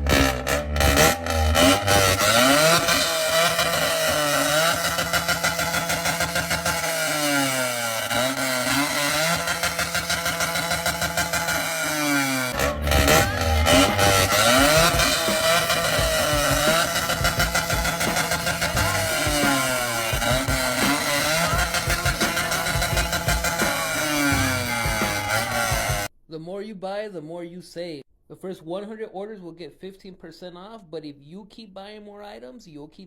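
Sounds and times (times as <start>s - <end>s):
engine revving: 0.0s - 26.1s.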